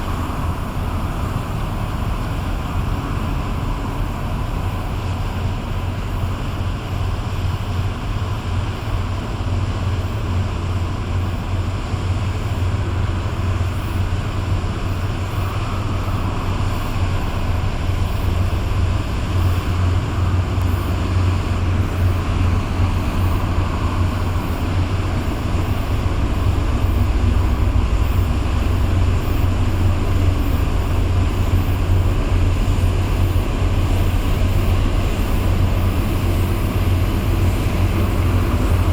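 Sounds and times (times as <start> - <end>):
boat diesel engines rumbling: 0.0 - 38.9
wind buffeting microphone: 8.1 - 38.9.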